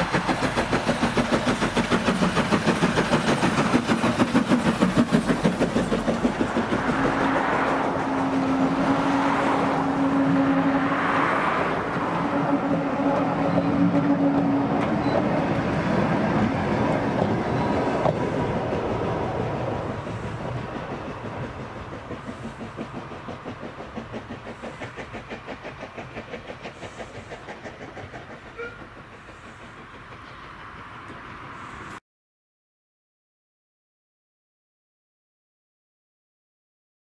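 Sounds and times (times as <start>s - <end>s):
steam train passing: 0.0s - 32.0s
wheels clattering over rail joints: 11.1s - 31.7s.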